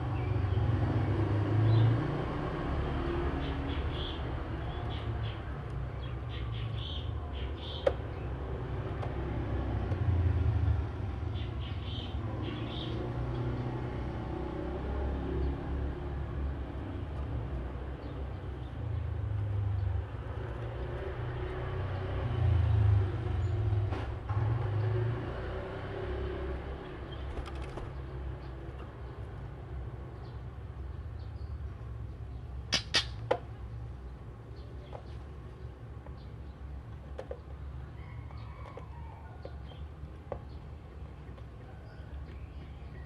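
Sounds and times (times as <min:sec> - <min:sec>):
passing vehicle rumble: 0:00.0 - 0:07.4, 0:08.0 - 0:32.7
sharp short clicks: 0:32.7 - 0:33.3.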